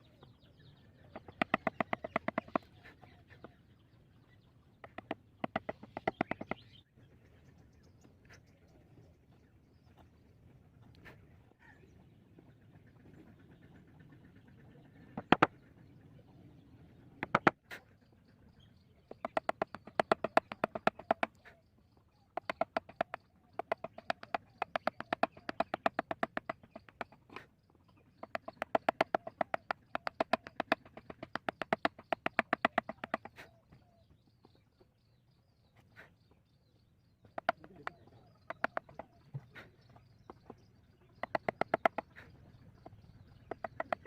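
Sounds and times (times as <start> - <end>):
mallet tapping chisel into wood: 1.2 - 2.6, 4.8 - 6.6, 15.2 - 15.5, 17.2 - 17.5, 19.2 - 21.3, 22.4 - 27.1, 28.2 - 33.2, 38.5 - 39.0, 41.2 - 42.0.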